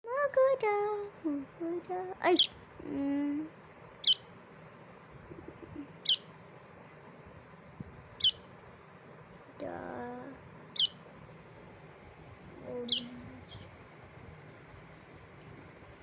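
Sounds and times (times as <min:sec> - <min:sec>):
baby bird chirping: 0:02.2 - 0:02.7, 0:04.0 - 0:04.4, 0:05.4 - 0:06.4, 0:08.1 - 0:08.6, 0:10.2 - 0:11.1, 0:12.6 - 0:13.8
person's voice: 0:09.6 - 0:10.4, 0:12.6 - 0:13.8.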